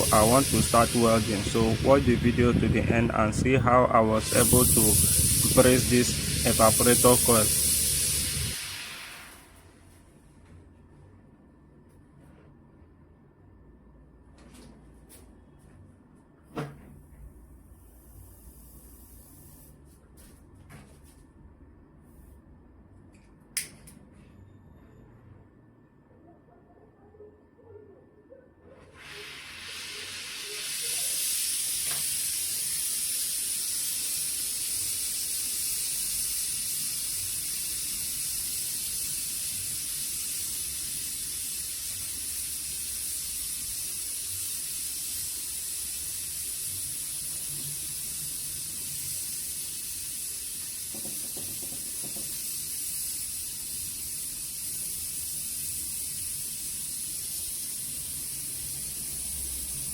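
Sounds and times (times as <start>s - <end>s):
brazing torch hissing: 0.0s - 9.6s, 28.9s - 59.9s.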